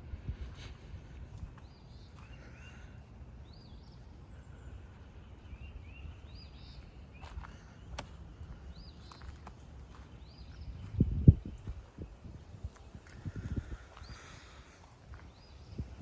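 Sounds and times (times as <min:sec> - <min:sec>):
steady low rumble: 0:00.0 - 0:16.0
bird chirping: 0:01.4 - 0:12.1.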